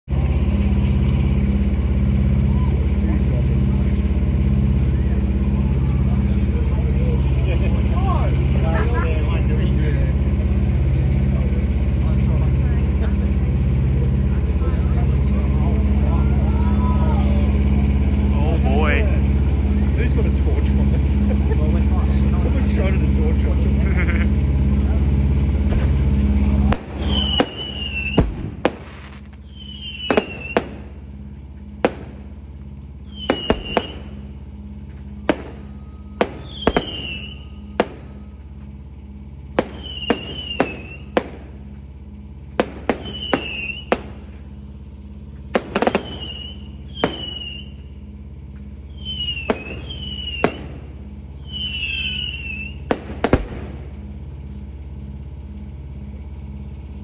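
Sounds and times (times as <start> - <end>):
low hum: 0.0 - 57.0
fireworks bangs: 25.5 - 38.7, 39.4 - 48.0, 48.8 - 54.4
falling whistle tone: 27.0 - 28.3, 29.4 - 30.6, 33.0 - 34.2, 35.7 - 38.4, 46.0 - 47.9, 48.9 - 50.6, 51.4 - 52.9.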